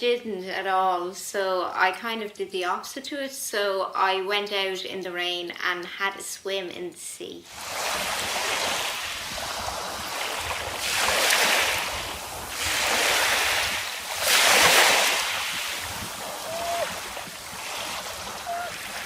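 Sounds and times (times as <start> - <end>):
sea waves washing onto shore: 7.5 - 19.0
wind buffeting microphone: 7.6 - 19.0.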